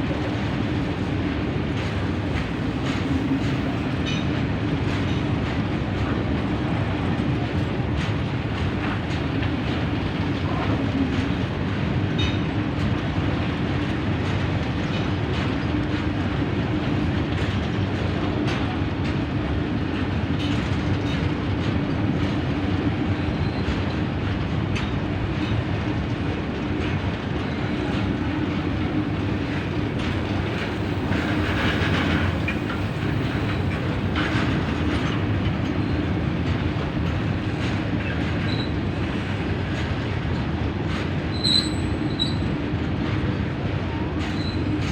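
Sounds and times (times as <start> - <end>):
train rumbling along track: 0.0 - 44.9
wheels clicking over rail joints: 26.8 - 42.5.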